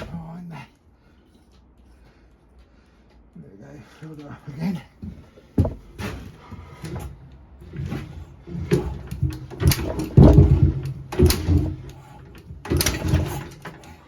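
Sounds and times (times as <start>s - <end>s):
engine cranking without starting: 7.6s - 14.0s.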